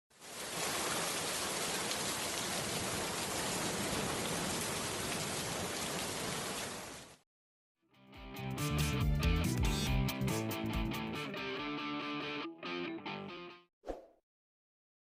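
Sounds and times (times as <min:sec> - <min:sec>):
rain-like noise: 0:00.1 - 0:07.2.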